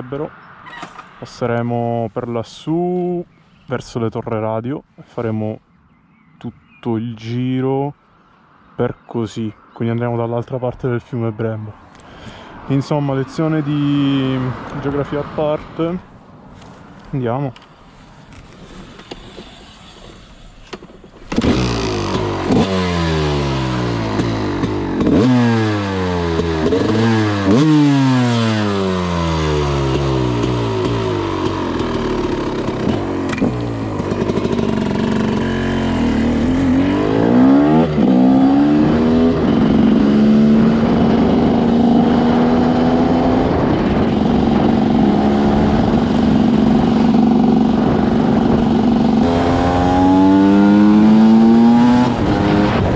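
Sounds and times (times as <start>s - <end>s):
motorcycle engine revving: 17.9s - 52.9s.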